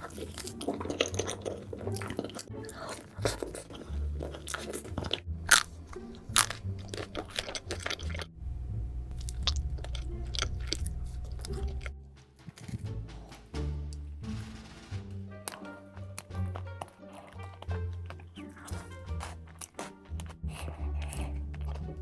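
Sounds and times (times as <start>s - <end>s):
crunchy chewing: 0.0s - 8.4s, 9.1s - 13.5s, 15.4s - 22.0s
steady low hum: 8.3s - 11.8s.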